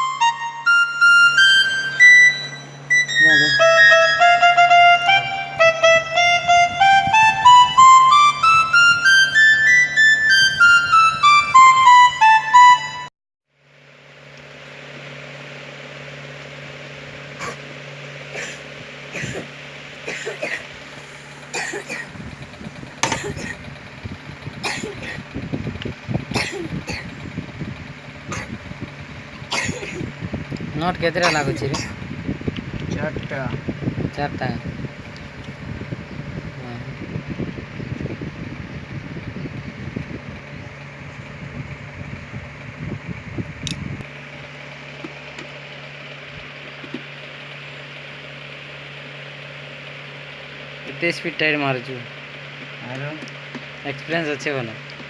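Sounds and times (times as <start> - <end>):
electronic keyboard flute-like notes: 0.0 - 13.1
steady low hum: 0.0 - 55.0.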